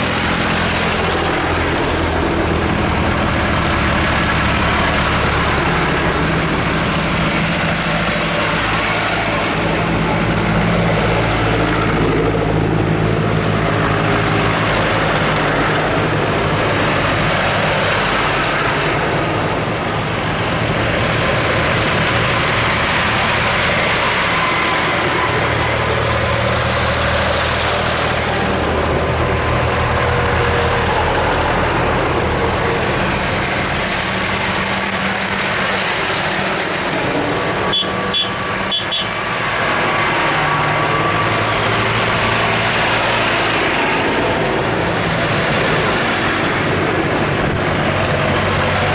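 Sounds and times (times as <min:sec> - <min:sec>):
tractor and car engines running: 0:00.0 - 0:48.9.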